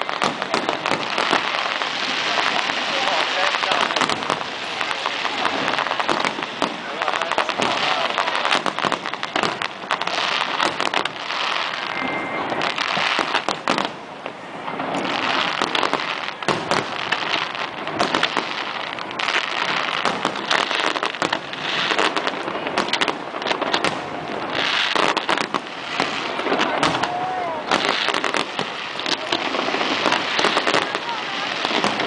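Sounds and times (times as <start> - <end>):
fireworks crackling and popping: 0.0 - 32.0.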